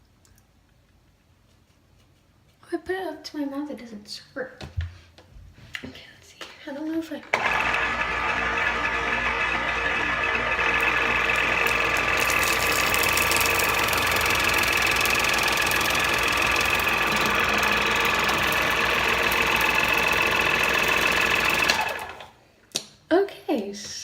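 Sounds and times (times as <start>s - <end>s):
water flosser motor buzzing: 7.3s - 22.4s.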